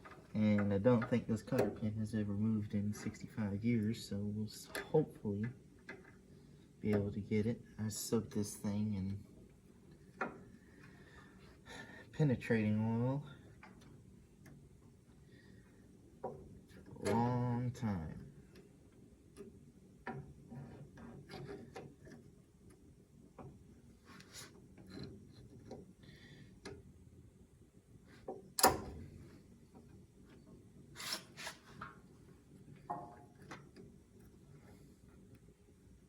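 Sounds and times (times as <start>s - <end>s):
hand tools scraping and clicking: 31.0s - 31.7s.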